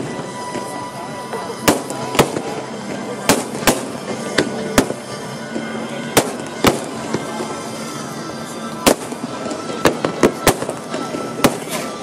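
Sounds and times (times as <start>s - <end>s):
steady background noise: 0.0s - 12.0s
firework shells bursting: 8.8s - 11.9s.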